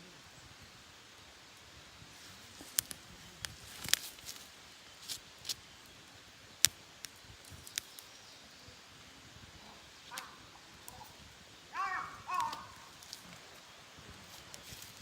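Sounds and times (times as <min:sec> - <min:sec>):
campfire crackling and popping: 0:02.4 - 0:08.2, 0:10.0 - 0:15.0.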